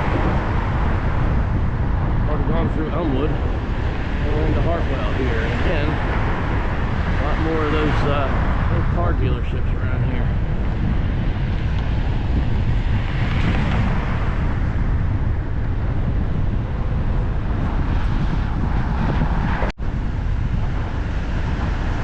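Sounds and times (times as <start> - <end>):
traffic noise: 0.0 - 8.8
wind on microphone: 0.0 - 22.0.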